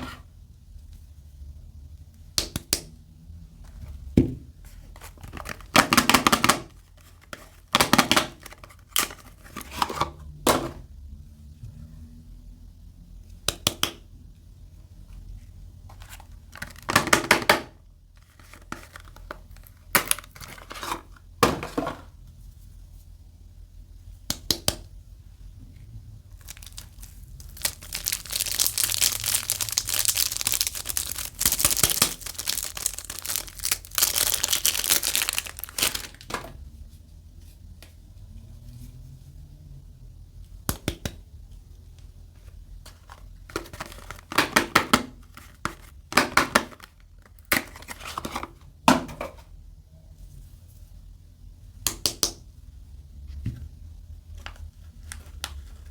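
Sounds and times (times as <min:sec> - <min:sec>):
soap wrapping crinkling: 0:04.8 - 0:09.9, 0:15.9 - 0:17.5, 0:18.2 - 0:21.1, 0:26.4 - 0:36.5, 0:42.8 - 0:48.5
wrapping tearing: 0:26.4 - 0:36.3.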